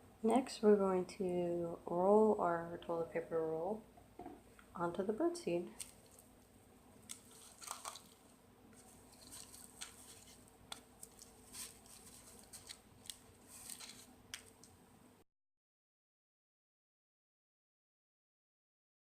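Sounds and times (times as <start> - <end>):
birdseed crackling: 5.7 - 14.8
cardboard tube rolling in seed: 7.1 - 8.2, 8.8 - 14.6.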